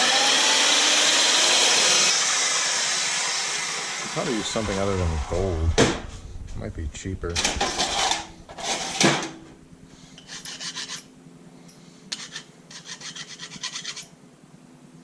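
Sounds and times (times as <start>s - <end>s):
loud knock: 5.7s - 6.3s
fast rasping strokes: 10.2s - 11.1s, 12.1s - 14.1s.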